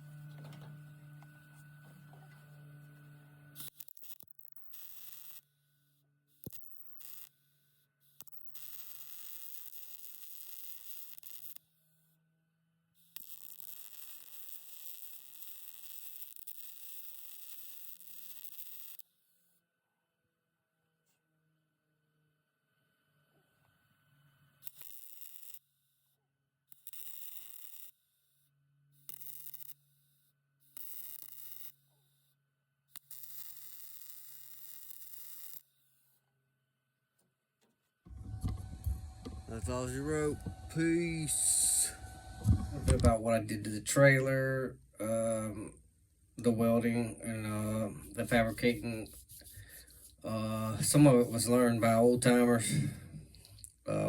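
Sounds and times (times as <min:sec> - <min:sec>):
welding arc sizzling: 0:00.0 - 0:05.4, 0:06.4 - 0:07.3, 0:08.2 - 0:11.6, 0:13.0 - 0:19.0, 0:24.6 - 0:25.6, 0:26.9 - 0:27.9, 0:29.0 - 0:29.8, 0:30.8 - 0:31.7, 0:33.0 - 0:35.6, 0:38.1 - 0:44.2, 0:46.4 - 0:54.0
low hum: 0:38.1 - 0:44.2.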